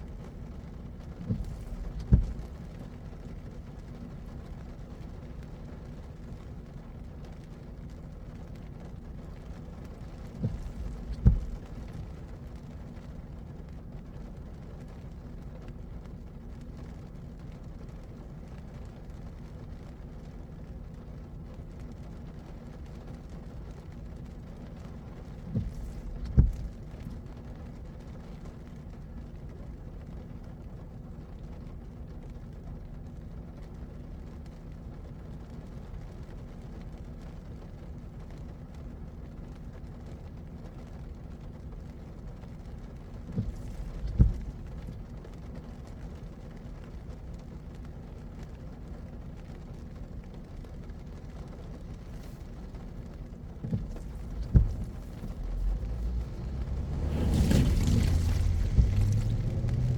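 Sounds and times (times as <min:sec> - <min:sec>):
short thumps: 0:00.0 - 0:04.4, 0:09.8 - 0:12.6, 0:25.2 - 0:27.4, 0:42.9 - 0:46.6, 0:51.8 - 0:59.9
car driving on wet road: 0:00.0 - 0:59.9.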